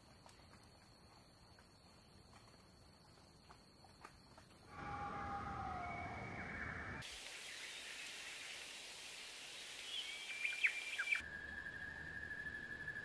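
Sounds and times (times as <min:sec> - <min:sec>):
outdoor background hiss: 0:04.7 - 0:13.0
whistling bird calls: 0:04.8 - 0:07.9, 0:09.8 - 0:13.0
sharp bird chirps: 0:09.7 - 0:13.0.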